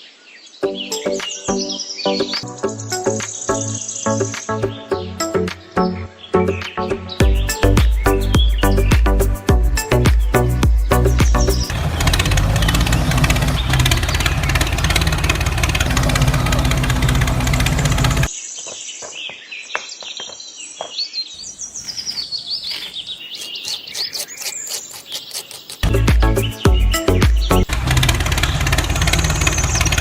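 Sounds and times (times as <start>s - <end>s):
birds chirping: 0.0s - 30.0s
loud low drone: 11.6s - 18.3s.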